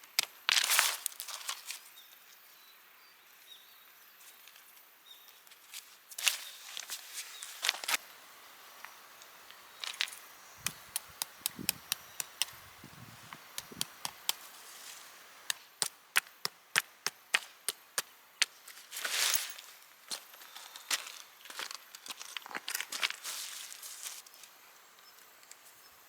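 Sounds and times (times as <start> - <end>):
chopping wood knocks: 10.6 - 12.6.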